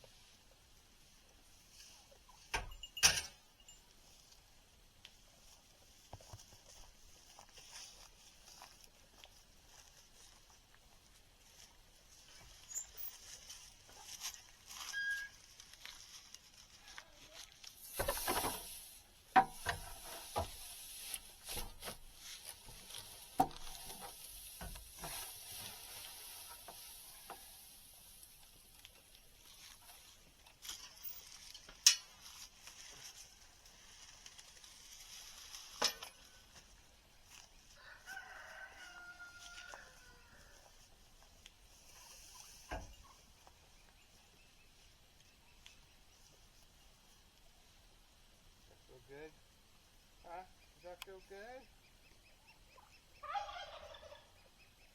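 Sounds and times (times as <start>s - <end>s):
rustling: 3.7s - 47.6s
rooster crowing: 37.8s - 40.6s.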